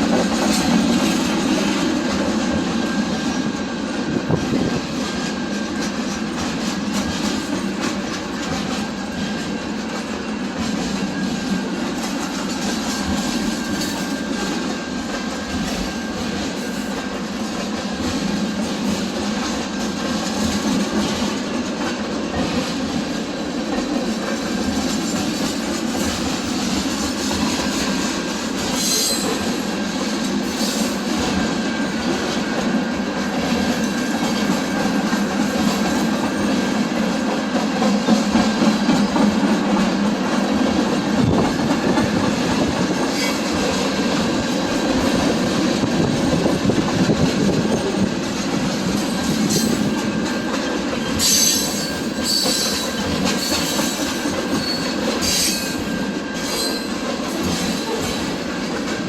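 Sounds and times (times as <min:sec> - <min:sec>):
train rumbling on rails: 0:00.0 - 0:59.0
high-pitched wheel squeals: 0:28.8 - 0:29.4, 0:51.2 - 0:57.0.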